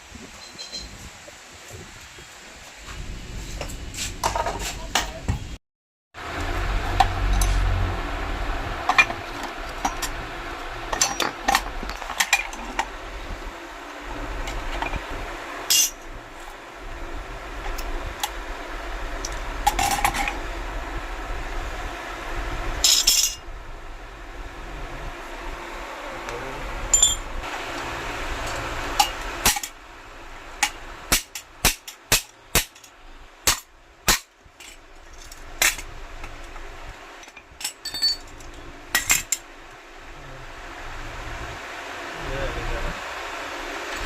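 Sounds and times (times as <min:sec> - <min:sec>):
metal tools clinking: 0:00.4 - 0:01.0, 0:10.9 - 0:12.6, 0:15.7 - 0:16.0, 0:22.8 - 0:23.4, 0:26.9 - 0:27.3, 0:37.2 - 0:39.4
low hum: 0:06.2 - 0:31.7, 0:32.4 - 0:44.0.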